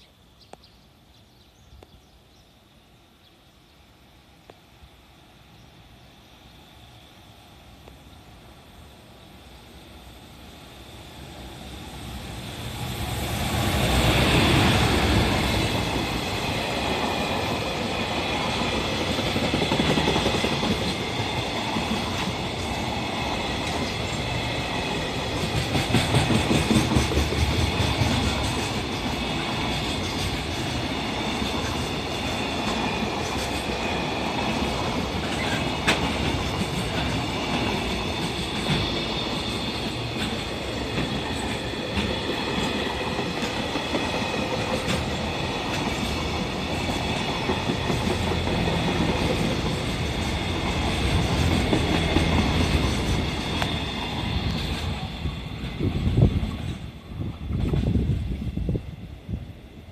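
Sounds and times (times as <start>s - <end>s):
freight train wheels rumbling on rail: 7.6s - 59.9s.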